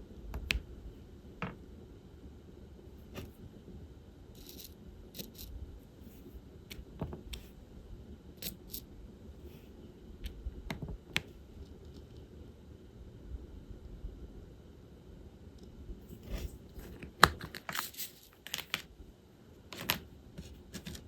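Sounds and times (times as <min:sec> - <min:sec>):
small plastic pieces clicking: 0:19.8 - 0:21.0.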